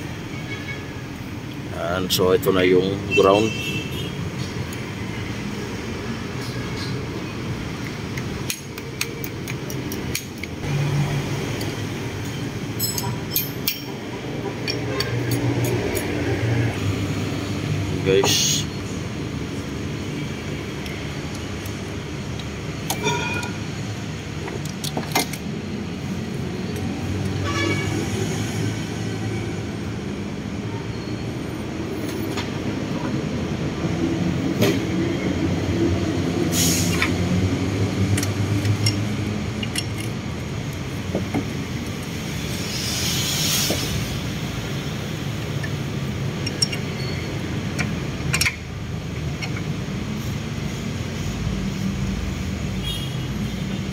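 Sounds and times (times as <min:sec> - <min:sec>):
metallic clicks and clinks: 0:11.5 - 0:14.0, 0:38.1 - 0:40.8, 0:45.6 - 0:48.6.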